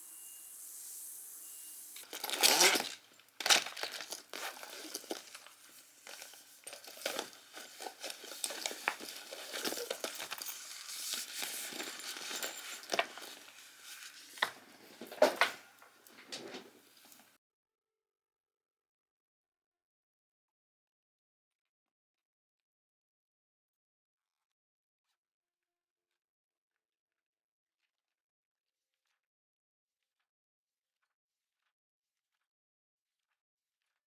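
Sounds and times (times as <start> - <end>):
crinkling of handled material: 2.0 - 17.4.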